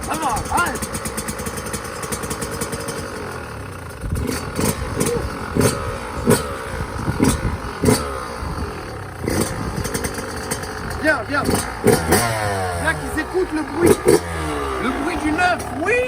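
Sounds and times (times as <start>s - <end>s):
two-stroke engine revving: 0.0s - 16.0s.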